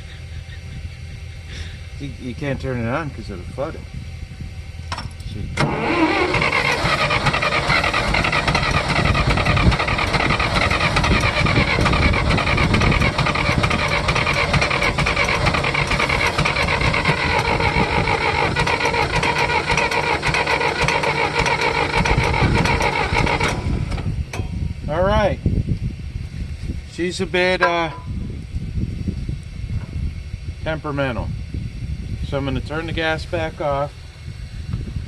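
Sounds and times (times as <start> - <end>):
engine cranking by starter: 4.9 - 24.5.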